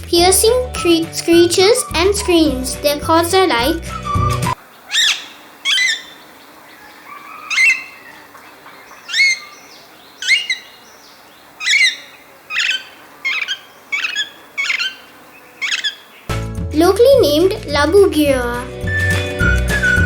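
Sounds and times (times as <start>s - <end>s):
parakeet screeching: 3.9s - 10.9s, 11.6s - 16.3s.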